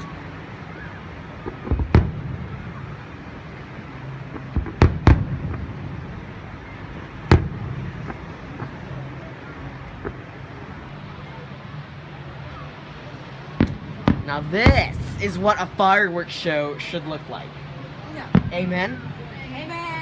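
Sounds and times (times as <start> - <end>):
steady low rumble: 0.0 - 20.0
faint firework pops: 1.4 - 2.5, 4.3 - 5.8, 7.3 - 8.8, 10.0 - 10.3, 13.6 - 15.2, 18.3 - 19.0
fireworks bursting in sharp bangs: 1.4 - 3.1, 4.3 - 10.6, 13.5 - 15.6, 18.2 - 19.2.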